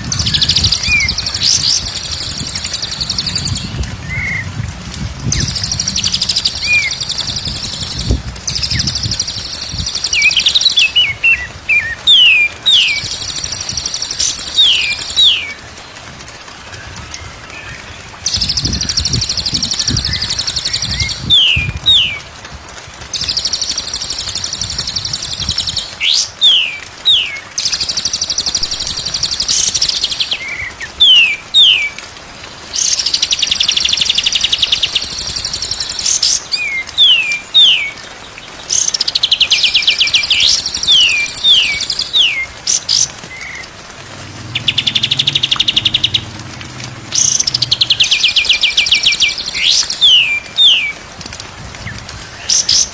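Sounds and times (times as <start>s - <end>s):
songbird chattering song: 0.0s - 4.5s, 5.2s - 15.5s, 17.7s - 22.2s, 32.8s - 43.7s, 44.4s - 51.0s.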